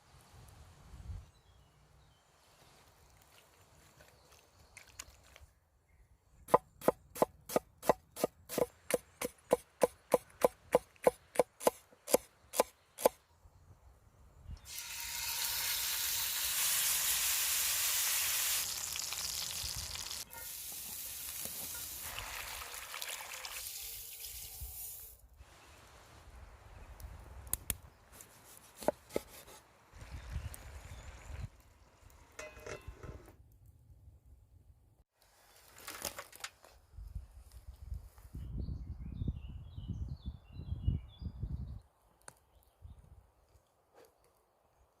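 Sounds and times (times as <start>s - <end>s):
food sizzling in hot pan: 14.7s - 25.1s.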